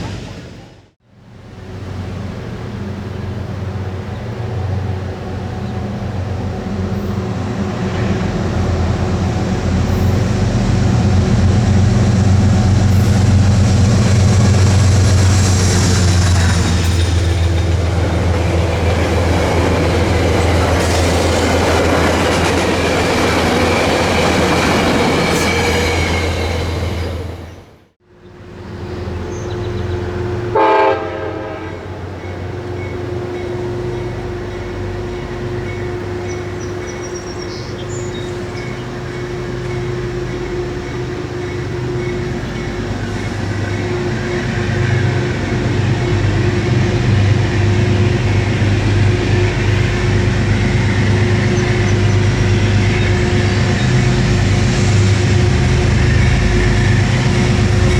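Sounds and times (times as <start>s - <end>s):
train passing with rail noise: 0.0s - 57.9s
train running hum: 0.0s - 57.9s
train horn blast: 29.8s - 57.9s.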